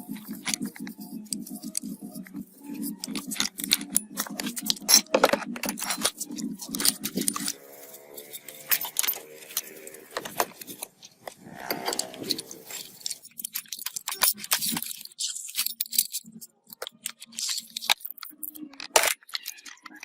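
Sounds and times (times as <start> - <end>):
metal parts clinking: 0.0 - 20.0.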